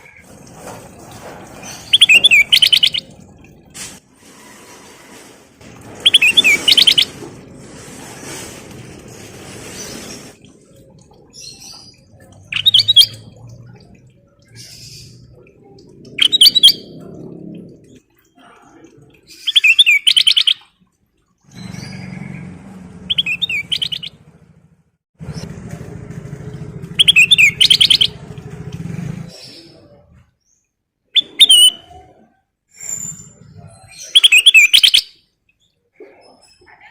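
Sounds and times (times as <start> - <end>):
bird chirping phrases: 1.9 - 3.2, 23.0 - 24.2, 27.0 - 28.2.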